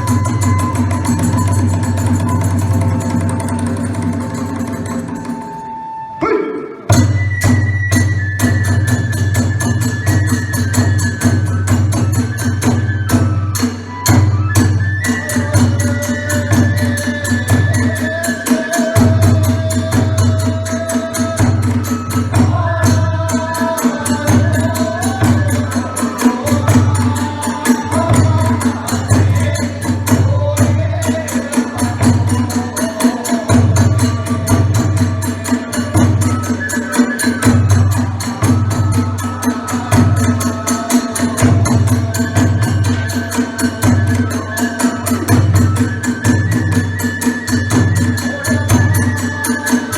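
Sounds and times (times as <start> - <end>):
bamboo flute melody: 0.0 - 49.9
hand cymbals clashing: 15.0 - 49.9.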